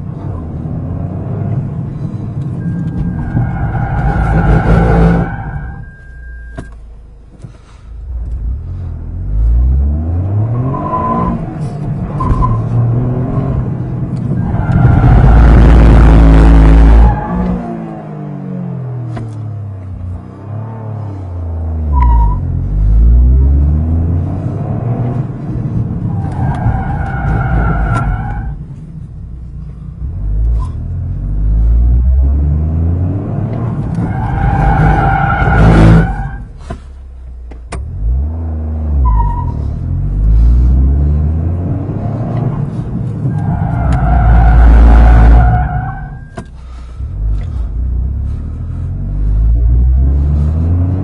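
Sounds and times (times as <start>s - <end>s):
car engine humming: 0.0s - 51.0s
wheel squeal: 39.0s - 39.8s, 42.7s - 46.6s.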